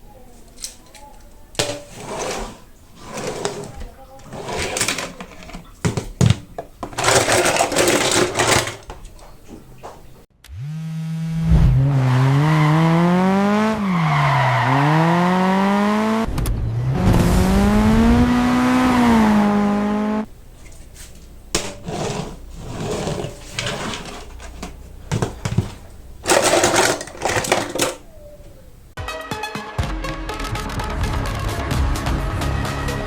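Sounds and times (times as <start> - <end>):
clicks and rattles: 0.5 - 10.1, 20.6 - 28.6
car engine revving loudly: 10.6 - 20.3.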